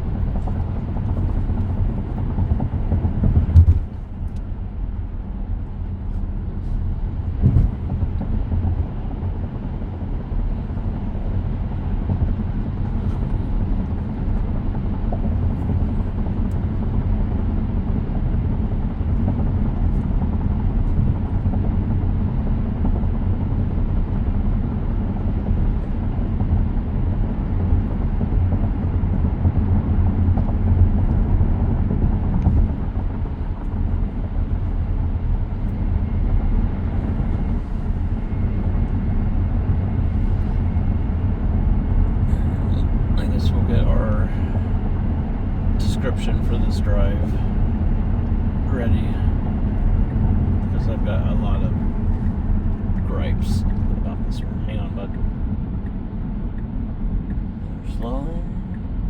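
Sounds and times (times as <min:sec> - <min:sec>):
road and tyre rumble in car: 0:00.0 - 0:59.0.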